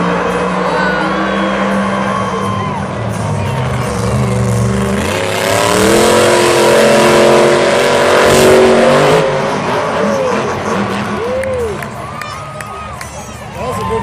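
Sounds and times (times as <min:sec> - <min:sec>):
truck engine revving hard: 0:00.0 - 0:12.1.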